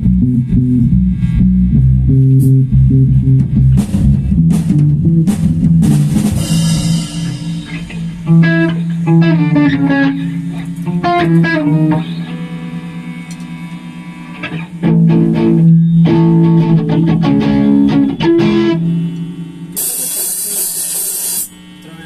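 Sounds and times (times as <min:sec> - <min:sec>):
band music: 0:00.0 - 0:19.2
cymbal crash: 0:05.3 - 0:11.2.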